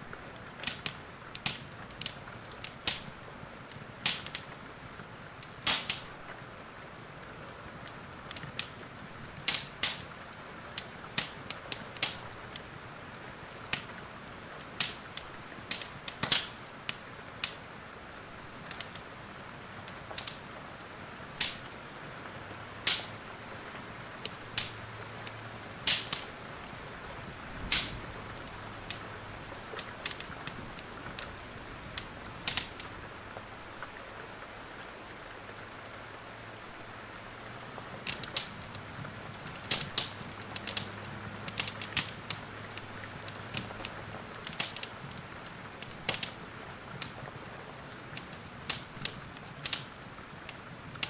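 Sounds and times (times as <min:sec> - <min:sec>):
wood fire crackling and popping: 0:00.0 - 0:23.5, 0:24.1 - 0:34.0, 0:37.5 - 0:51.0
rain hissing: 0:00.0 - 0:51.0.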